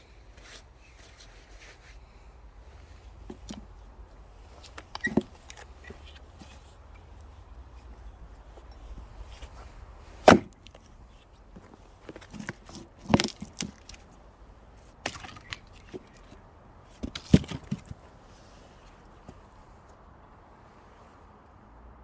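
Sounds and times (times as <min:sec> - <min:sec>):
small wood knocks: 0:03.2 - 0:03.8, 0:04.5 - 0:08.0, 0:10.3 - 0:14.2, 0:14.8 - 0:18.0
axe splitting logs: 0:04.5 - 0:14.2, 0:14.8 - 0:18.0.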